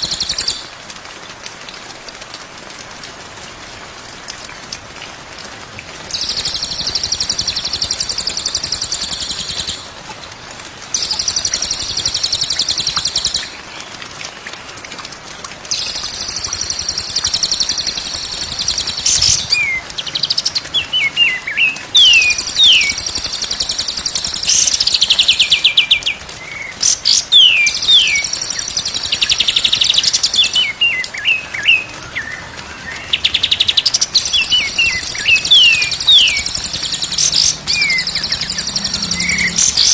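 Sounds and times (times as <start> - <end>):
songbird trilling: 15.8 - 23.1, 33.2 - 39.9.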